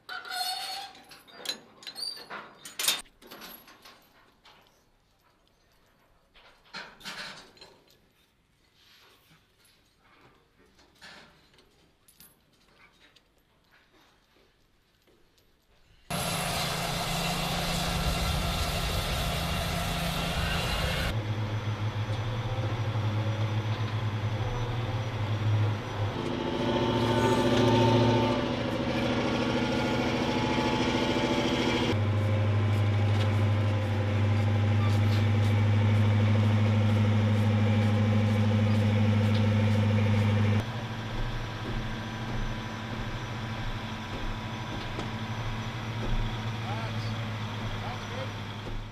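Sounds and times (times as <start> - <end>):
heavy vehicle engines running: 16.1 - 48.9.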